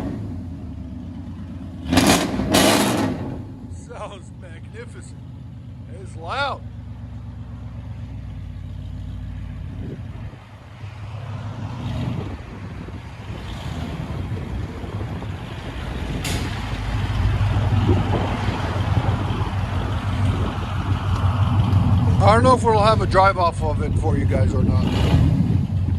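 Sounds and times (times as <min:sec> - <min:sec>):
deep loud exhaust rumble: 0:00.0 - 0:25.9
sharp click: 0:16.2 - 0:16.7.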